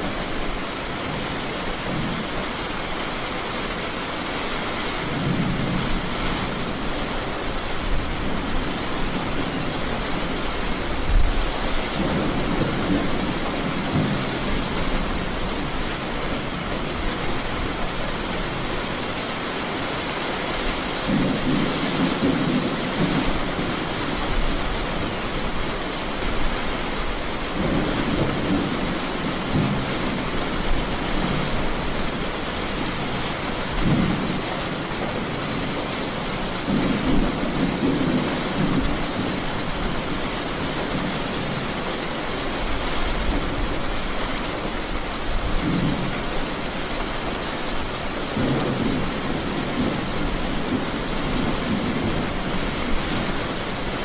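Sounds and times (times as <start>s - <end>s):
rain hiss: 0.0s - 54.0s
thunder rolling: 21.0s - 25.1s.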